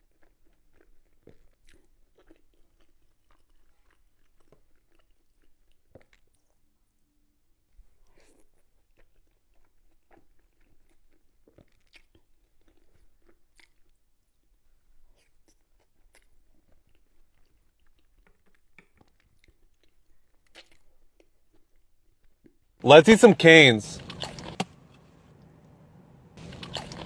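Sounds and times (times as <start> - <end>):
wet mouth clicks and smacks: 24.0 - 24.7, 26.4 - 27.0
chewing food: 24.0 - 27.0.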